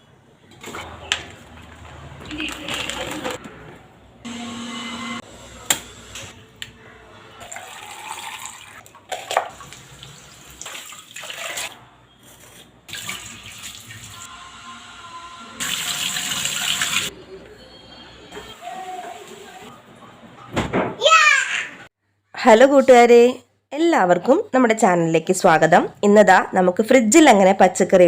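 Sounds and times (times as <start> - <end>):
water splashing in a sink: 7.4 - 11.8, 12.9 - 14.2.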